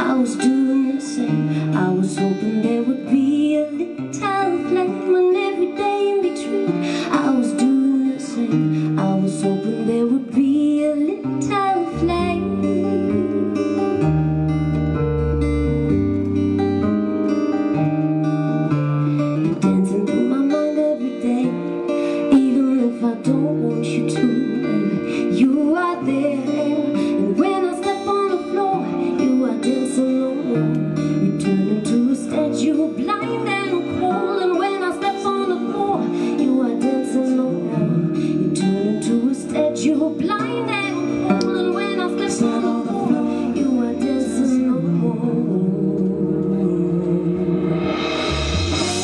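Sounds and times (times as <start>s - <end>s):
strummed acoustic guitar: 0.0s - 49.0s
bass line: 12.0s - 19.9s, 44.8s - 49.0s.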